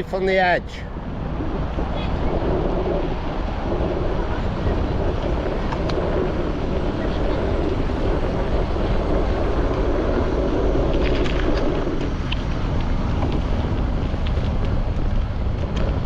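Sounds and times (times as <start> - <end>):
low rumble from bicycle ride: 0.0 - 16.0
wind buffeting microphone: 0.0 - 16.0.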